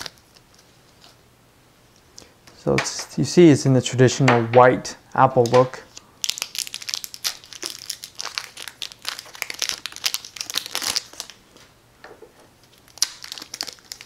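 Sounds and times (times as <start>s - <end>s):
plastic wrap crinkling: 0.0s - 1.2s, 5.5s - 11.6s, 12.6s - 14.0s.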